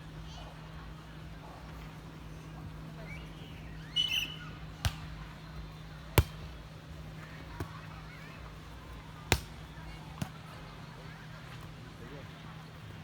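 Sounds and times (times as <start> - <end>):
volleyball smacks: 4.8 - 5.2, 6.1 - 6.6, 7.5 - 8.1, 9.2 - 10.5.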